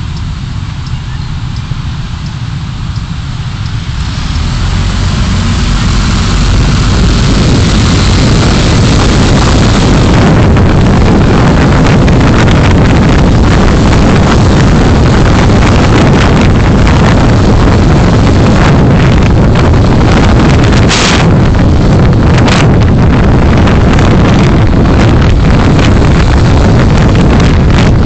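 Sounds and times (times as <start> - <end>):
low rumble: 0.0 - 28.0
road and wind noise: 0.0 - 28.0.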